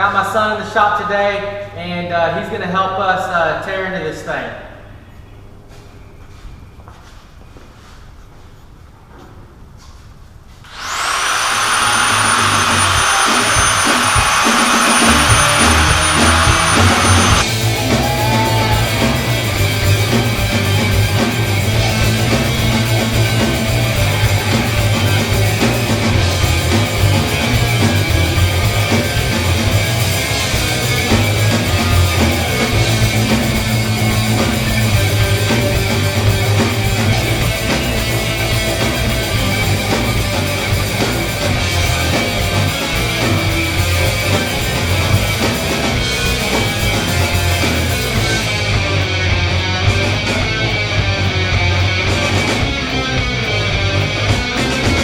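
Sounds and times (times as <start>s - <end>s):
rock music with electric guitar: 11.3s - 55.0s.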